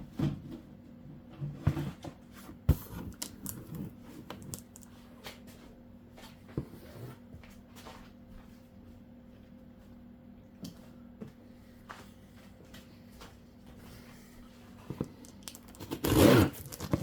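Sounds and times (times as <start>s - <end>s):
faint steady hum: 0.0s - 17.0s
parts and packaging handled: 2.7s - 5.0s, 14.7s - 17.0s.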